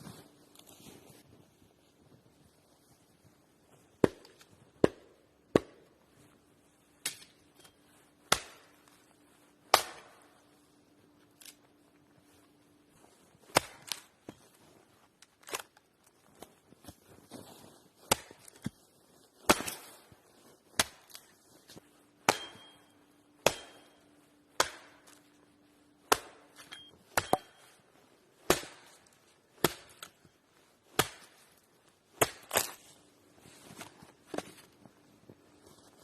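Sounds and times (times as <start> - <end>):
wood chopping strikes: 4.0 - 5.9, 8.2 - 8.8, 9.7 - 10.3, 18.1 - 18.8, 19.4 - 19.9, 20.8 - 21.2, 22.2 - 25.3, 26.0 - 27.7, 28.4 - 30.1, 30.9 - 31.4, 32.2 - 32.8.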